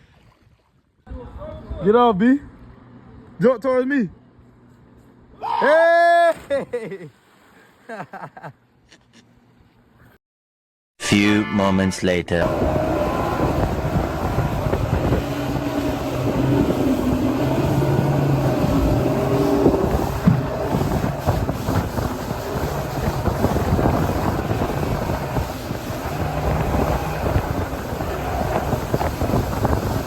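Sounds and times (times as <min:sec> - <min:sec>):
motorboat running: 0:12.4 - 0:30.0
wind on microphone: 0:12.4 - 0:30.0.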